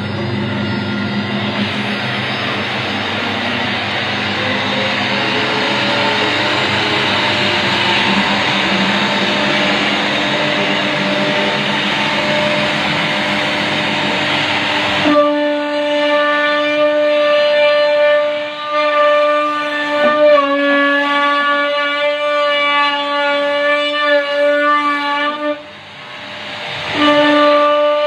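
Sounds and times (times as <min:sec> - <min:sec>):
router spindle whine: 0:00.0 - 0:15.1
loud rushing noise: 0:00.0 - 0:15.8, 0:25.7 - 0:27.1.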